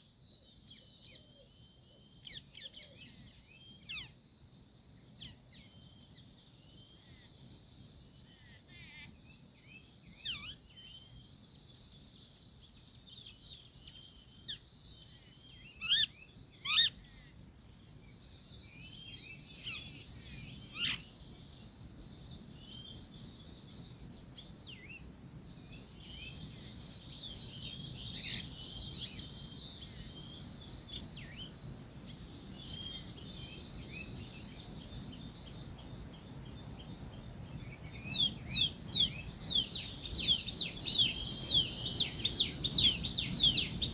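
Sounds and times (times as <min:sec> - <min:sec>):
small birds chirping and trilling: 0:00.0 - 0:43.9
downward-sweeping bird calls: 0:08.2 - 0:17.4, 0:18.6 - 0:25.0, 0:25.8 - 0:43.9.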